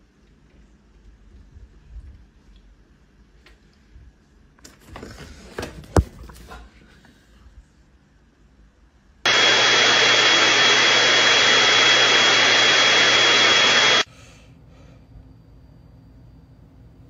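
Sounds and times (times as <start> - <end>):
motor rushing with high whine: 9.3 - 14.1.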